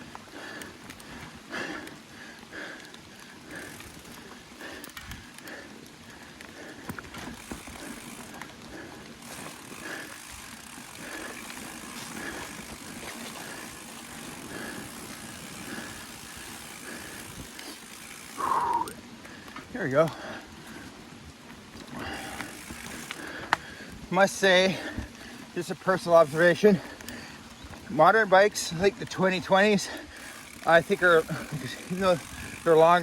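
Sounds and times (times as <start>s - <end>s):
bike chain and frame rattling: 0.0s - 33.0s
tyres rolling over rocks: 3.0s - 20.8s.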